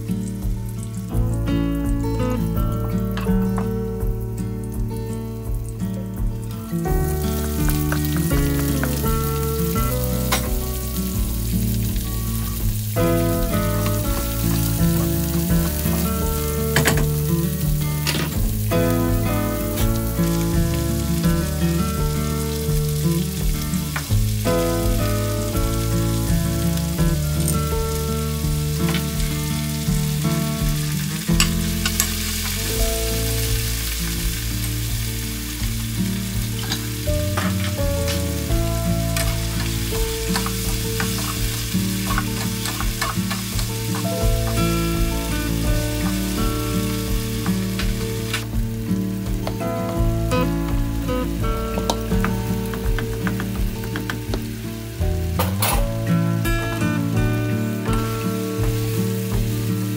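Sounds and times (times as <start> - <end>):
background music: 0.0 - 59.9
vegetables sizzling in oil: 0.0 - 59.9
stirring clicks: 39.1 - 44.8.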